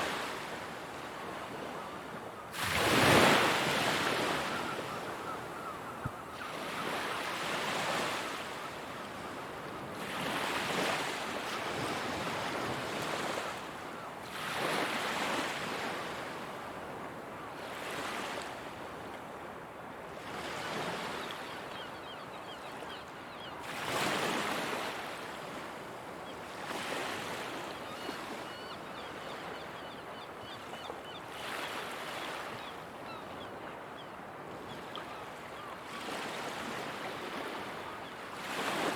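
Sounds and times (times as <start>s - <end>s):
ocean waves breaking on shore: 0.0s - 16.9s, 34.4s - 38.9s.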